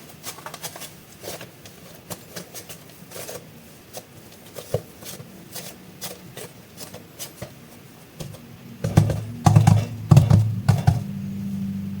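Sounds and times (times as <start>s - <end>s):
plastic packaging crinkling: 0.0s - 7.9s
steady low hum: 3.5s - 12.0s
thumps: 8.2s - 11.1s.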